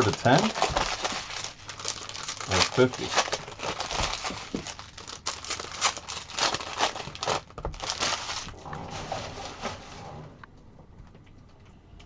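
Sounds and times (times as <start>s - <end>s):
card pack wrappers crinkling: 0.0s - 8.6s.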